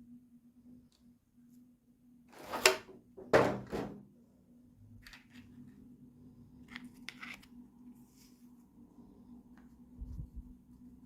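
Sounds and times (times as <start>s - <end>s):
low steady hum: 3.9s - 11.0s.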